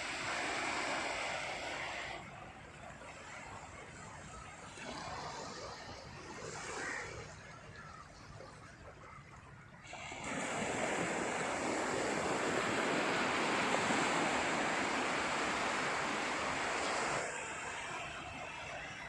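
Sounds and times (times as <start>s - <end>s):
sea surf washing onto beach: 0.0s - 4.0s, 9.8s - 19.0s.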